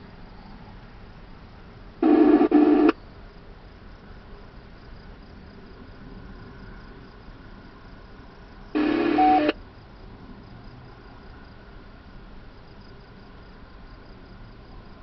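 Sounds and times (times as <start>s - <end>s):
background hiss: 0.0s - 10.1s
crickets chirring: 0.0s - 15.0s
radio scanner electronic tone: 2.0s - 3.0s, 8.8s - 9.6s.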